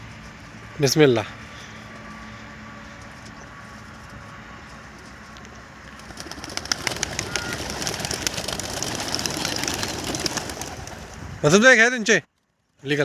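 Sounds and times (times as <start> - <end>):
pigeon wings clapping and flapping: 6.0 - 11.3.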